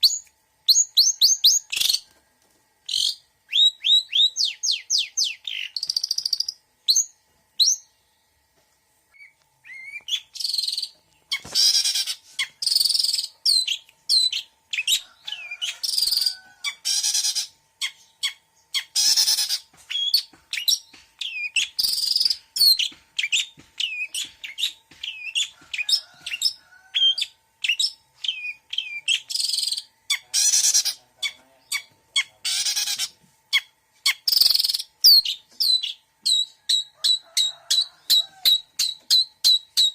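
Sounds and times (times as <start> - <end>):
shrike singing varied song: 0.0 - 2.1, 2.8 - 8.2, 9.1 - 39.9
harsh rasping bird calls: 9.1 - 39.9.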